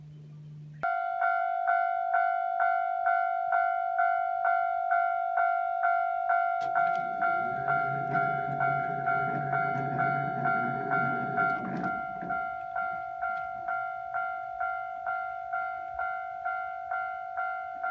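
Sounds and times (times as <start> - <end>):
level-crossing warning bell: 0.8 - 17.9
train approaching low drone: 1.0 - 17.9.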